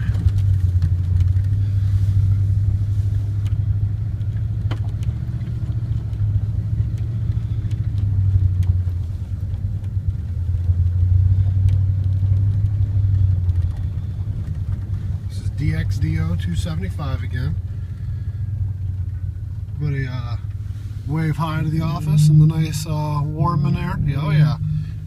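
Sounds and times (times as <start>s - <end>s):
truck engine drone: 0.0s - 25.0s
faint clicks: 4.2s - 15.3s.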